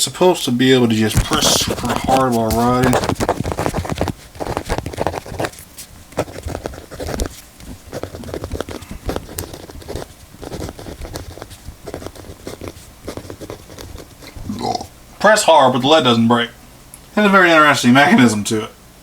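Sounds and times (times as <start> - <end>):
mechanical pencil clicks and scratches: 1.2 - 14.4.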